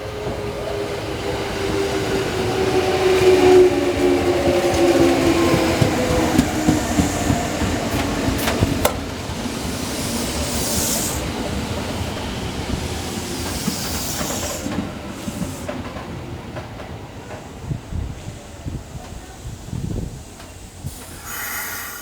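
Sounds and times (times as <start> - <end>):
train wheels clicking over rail joints: 4.2 - 21.9
hissing air bursts: 19.6 - 22.0.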